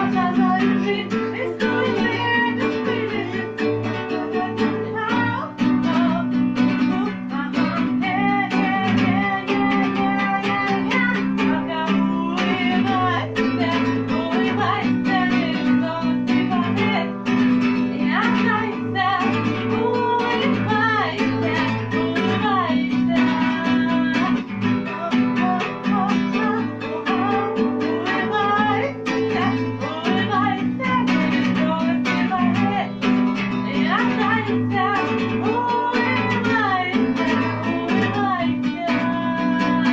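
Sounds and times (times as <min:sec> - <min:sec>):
acoustic guitar strumming: 0:00.0 - 0:39.9
person singing: 0:00.0 - 0:39.9.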